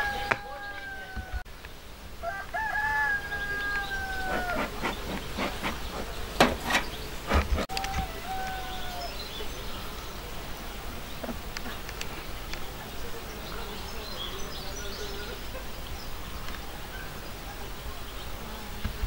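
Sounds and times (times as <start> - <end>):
rooster crowing: 0.0 - 1.5, 2.2 - 5.0, 7.6 - 9.4.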